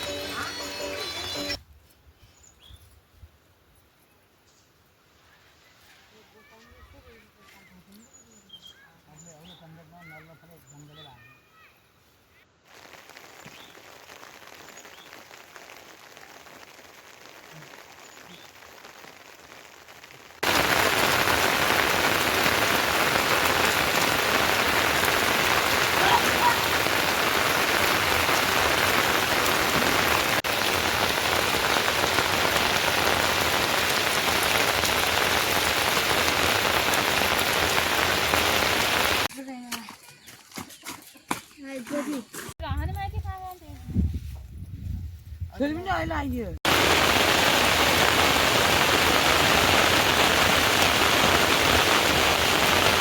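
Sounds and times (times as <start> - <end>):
heavy rain: 12.7 - 39.3, 46.6 - 53.0.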